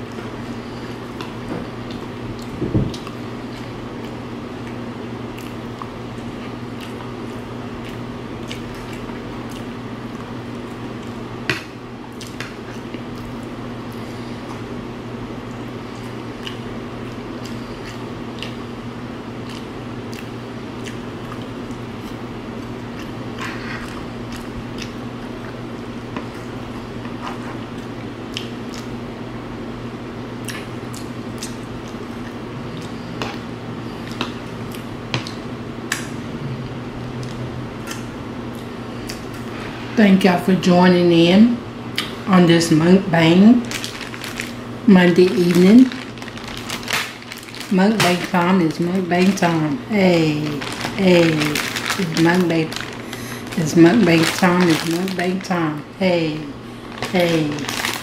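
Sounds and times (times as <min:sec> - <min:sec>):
steady low hum: 0:00.0 - 0:58.0
wet chewing and mouth noises: 0:01.0 - 0:11.2, 0:15.5 - 0:18.6, 0:19.4 - 0:23.2, 0:23.8 - 0:25.6, 0:26.2 - 0:28.9, 0:30.4 - 0:36.1.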